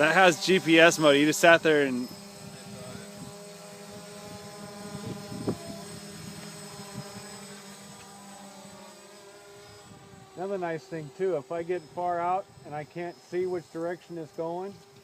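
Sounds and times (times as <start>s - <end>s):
drone propellers humming: 0.0s - 15.0s.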